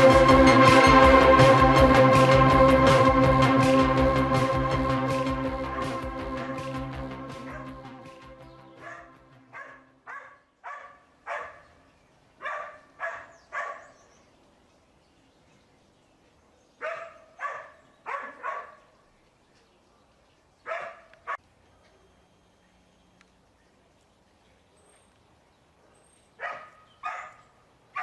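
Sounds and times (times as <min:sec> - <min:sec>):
dog barking: 0:07.5 - 0:07.7, 0:08.8 - 0:11.7, 0:12.4 - 0:14.0, 0:16.8 - 0:18.9, 0:20.6 - 0:21.4, 0:26.4 - 0:28.0.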